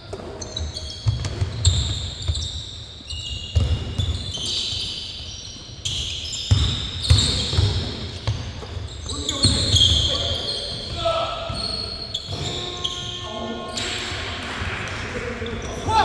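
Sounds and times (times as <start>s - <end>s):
sneakers squeaking on floor: 0.0s - 14.6s, 15.3s - 16.0s
basketball bouncing on court: 0.1s - 2.8s, 3.4s - 4.7s, 5.5s - 12.6s.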